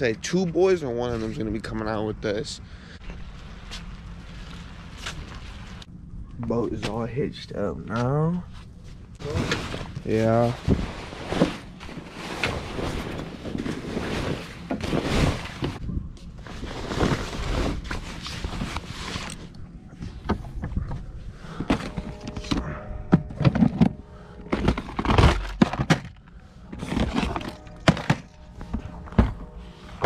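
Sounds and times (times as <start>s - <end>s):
plastic boxes knocking and clattering: 21.6s - 26.2s, 26.8s - 29.4s.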